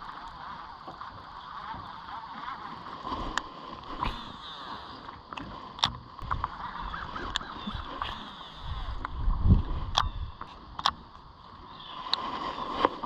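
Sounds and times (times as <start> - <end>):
sharp clicks and knocks: 5.3 - 6.5, 9.9 - 11.1.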